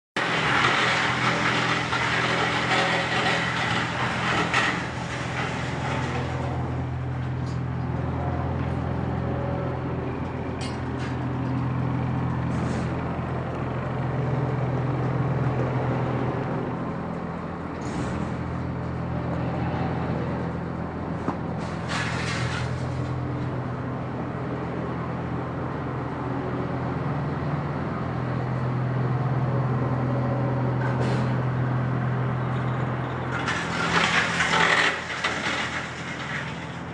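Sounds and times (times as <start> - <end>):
wood chipper chewing wood: 0.2 - 8.8, 33.3 - 36.9
wood chipper running: 0.2 - 27.1, 31.5 - 36.9.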